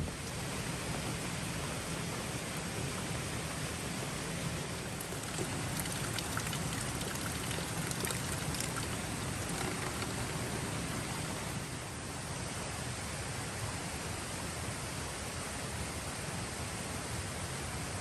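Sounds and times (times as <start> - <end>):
steady rain: 0.0 - 12.8
drops ticking on a surface: 5.0 - 11.5.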